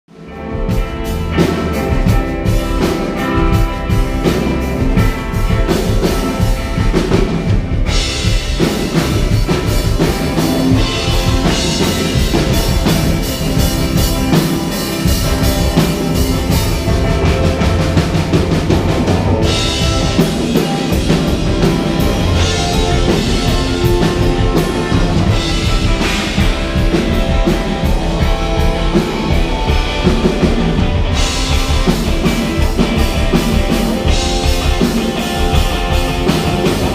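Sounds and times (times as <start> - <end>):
rock music with drums: 0.1 - 36.9.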